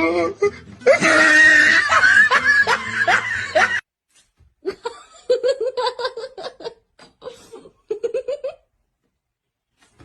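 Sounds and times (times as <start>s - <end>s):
person laughing: 0.4s - 3.8s, 4.6s - 8.7s.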